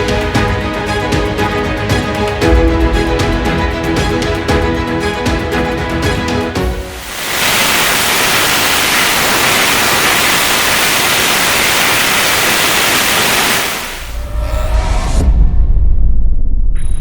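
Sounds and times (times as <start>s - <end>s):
rocket engine roaring: 6.9s - 17.0s.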